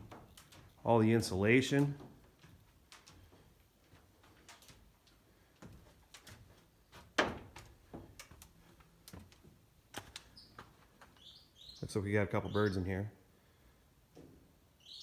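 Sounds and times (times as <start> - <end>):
faint bird chirp: 10.3 - 12.9, 14.8 - 15.0.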